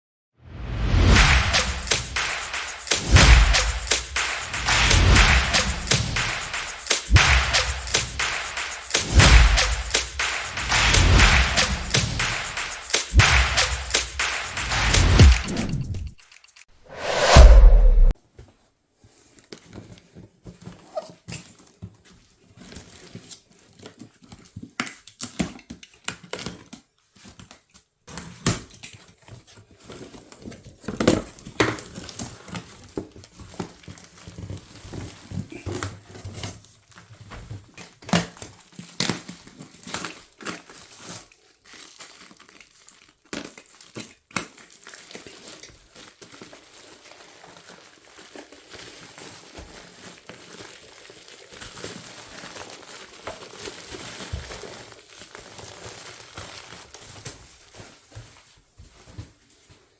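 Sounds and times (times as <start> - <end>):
packing material crinkling: 38.6 - 59.7.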